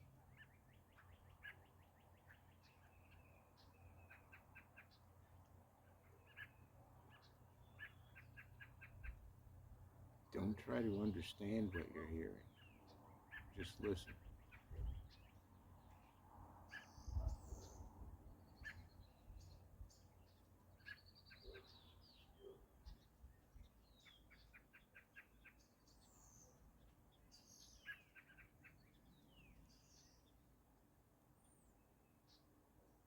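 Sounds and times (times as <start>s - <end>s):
wild birds chirping: 0.0s - 33.0s
bird trills: 6.0s - 9.2s, 20.8s - 23.1s, 27.3s - 30.2s.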